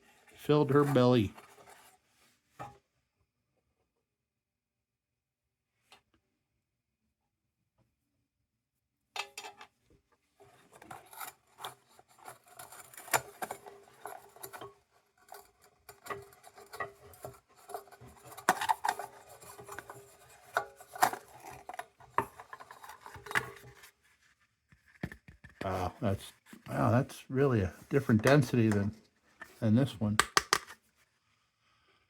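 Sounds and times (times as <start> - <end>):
scraping and rubbing: 0.1 - 2.3, 10.4 - 30.9
small clicks and knocks: 30.2 - 30.9.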